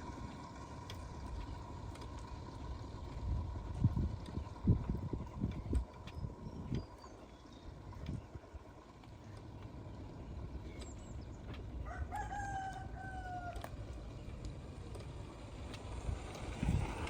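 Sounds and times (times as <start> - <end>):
steady low rumble: 0.0 - 17.0
rooster crowing: 11.8 - 13.7.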